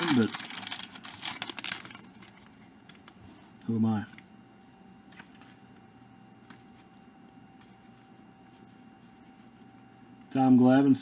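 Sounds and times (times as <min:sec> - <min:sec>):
cards ticking and rustling: 0:00.0 - 0:03.2.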